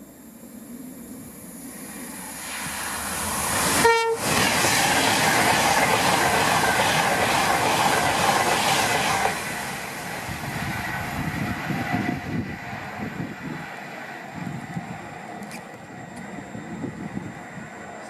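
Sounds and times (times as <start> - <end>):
train passing at speed: 0.0 - 18.0
train horn blast: 3.8 - 4.3.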